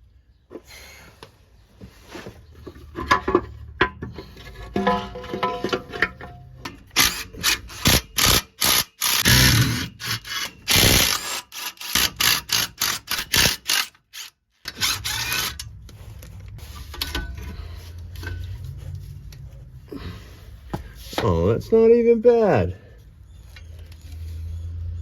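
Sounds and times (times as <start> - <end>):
hand tools clanking on metal: 2.6 - 7.9, 16.8 - 18.8.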